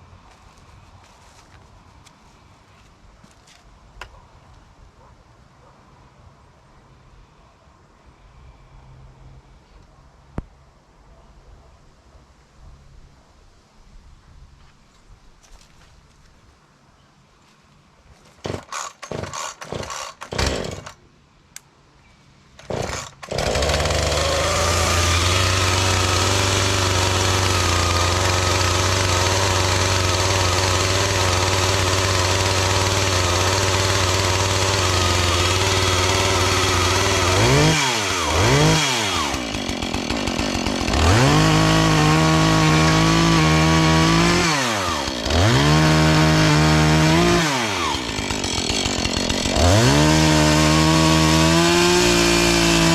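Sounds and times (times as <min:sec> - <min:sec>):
chainsaw idling: 0:18.4 - 0:21.0, 0:22.6 - 0:52.9
chainsaw pull-start bursts: 0:18.4 - 0:21.0, 0:22.6 - 0:52.9
chainsaw revving: 0:18.4 - 0:21.0, 0:22.6 - 0:52.9.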